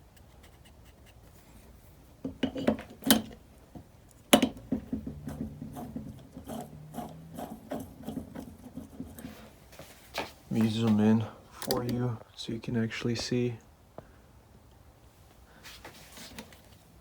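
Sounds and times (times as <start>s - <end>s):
handling clicks and knocks: 2.2s - 9.5s.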